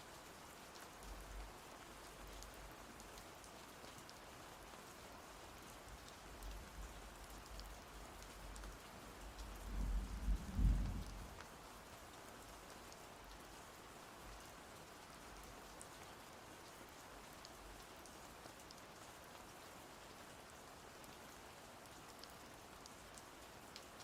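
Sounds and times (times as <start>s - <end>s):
steady rain falling: 0.0s - 24.0s
thunder rolling: 9.8s - 11.3s.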